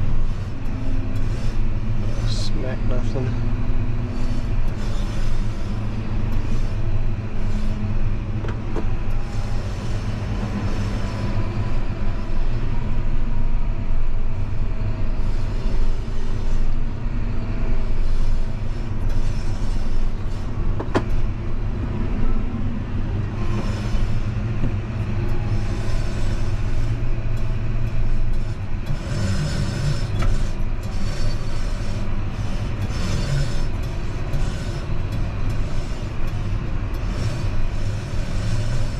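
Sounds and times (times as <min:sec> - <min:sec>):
vehicle engine rumbling: 0:00.0 - 0:38.9.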